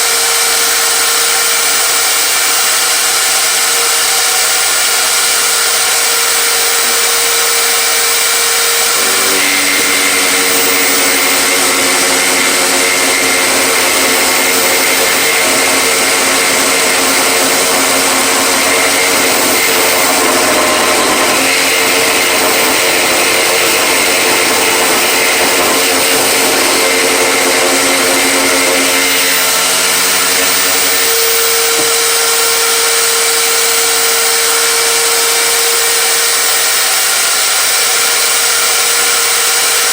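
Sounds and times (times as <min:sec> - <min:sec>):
electric power tool motor: 0:00.0 - 0:39.9
deeper motor note: 0:06.1 - 0:36.6.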